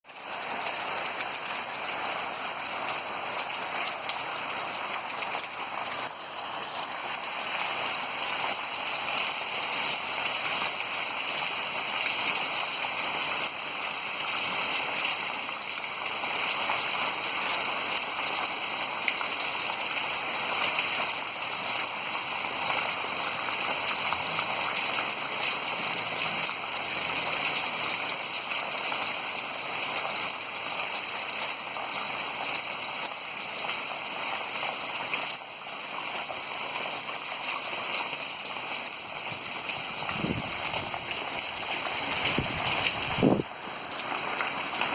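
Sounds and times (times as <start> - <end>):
heavy rain falling: 0.1 - 44.9
running water: 38.1 - 44.9.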